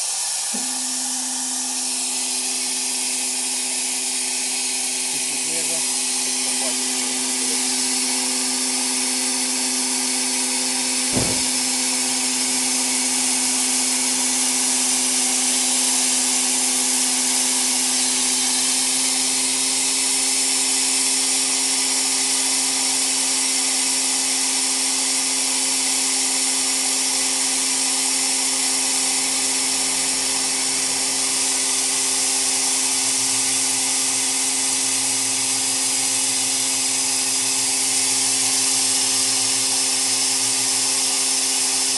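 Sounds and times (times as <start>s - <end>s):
machine hum: 0.0s - 14.7s
sandblasting jet hissing: 0.0s - 41.9s.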